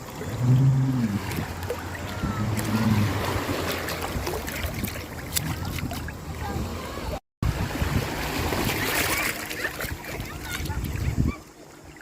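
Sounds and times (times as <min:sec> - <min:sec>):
sea water lapping around a boat: 0:00.0 - 0:12.0
small splashes and clicks: 0:03.5 - 0:06.2.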